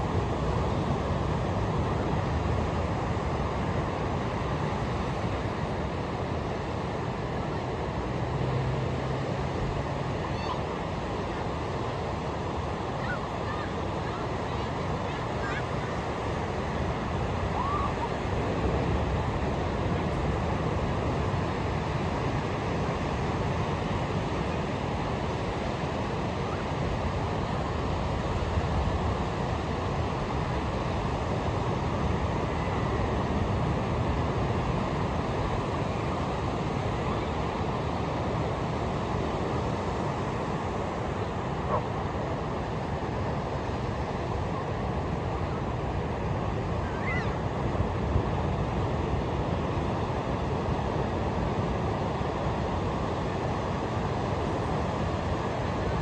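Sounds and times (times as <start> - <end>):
waves breaking on a beach: 0.0 - 56.0.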